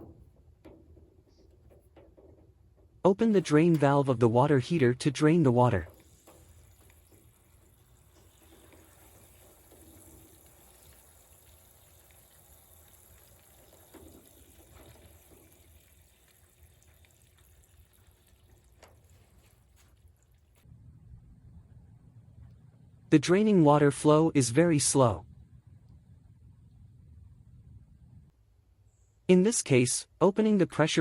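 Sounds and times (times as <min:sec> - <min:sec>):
faint trickle of water: 0:05.6 - 0:20.7.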